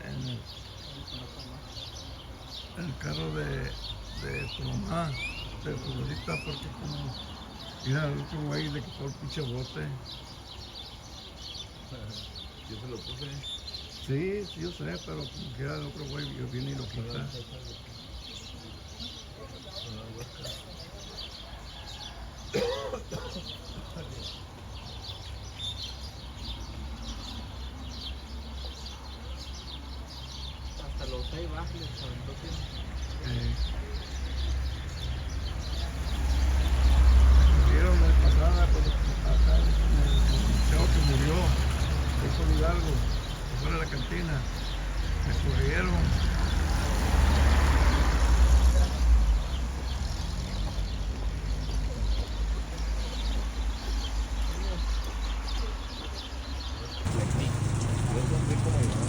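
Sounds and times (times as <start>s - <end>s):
birds chirping: 0.0s - 59.0s
vehicle passing: 2.1s - 9.5s, 33.3s - 53.6s, 57.1s - 59.0s.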